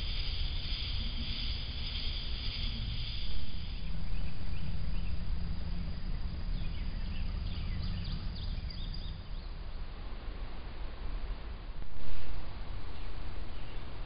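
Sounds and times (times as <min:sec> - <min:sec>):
faint bird chirps: 0:00.0 - 0:09.7
steady low rumble: 0:00.0 - 0:14.0.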